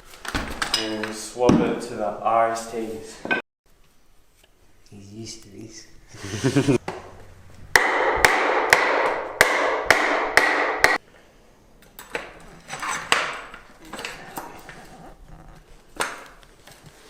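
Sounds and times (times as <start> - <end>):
handling of metal parts: 0.3 - 1.2, 12.6 - 14.2.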